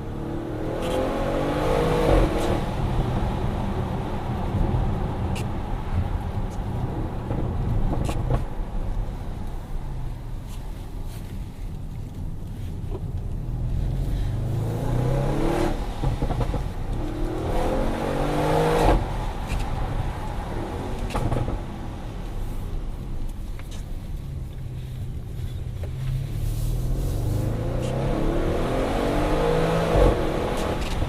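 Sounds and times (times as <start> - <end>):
car engine accelerating: 0.0 - 8.2, 13.4 - 22.3, 24.2 - 31.0.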